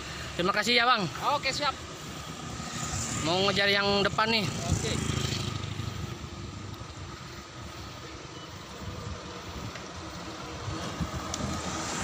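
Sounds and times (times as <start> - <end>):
engine rumbling: 1.1 - 12.0.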